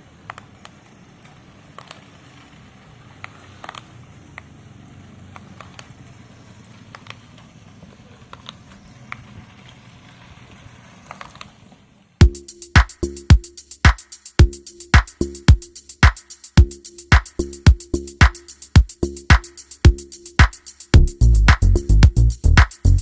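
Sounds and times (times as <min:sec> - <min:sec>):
small clicks and crackles: 0:00.2 - 0:04.6, 0:05.3 - 0:12.0.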